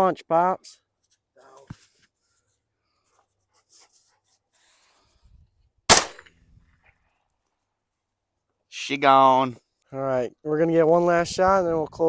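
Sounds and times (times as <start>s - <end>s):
shotgun shot with echo: 5.9s - 6.3s.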